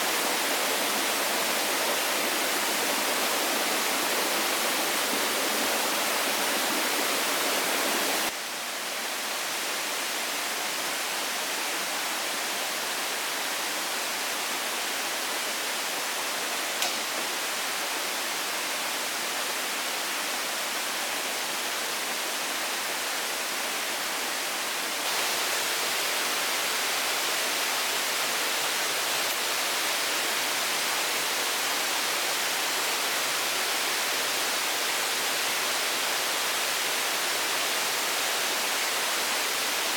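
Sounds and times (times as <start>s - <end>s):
steady rushing hiss: 0.0s - 8.4s, 15.8s - 19.0s, 24.9s - 39.9s.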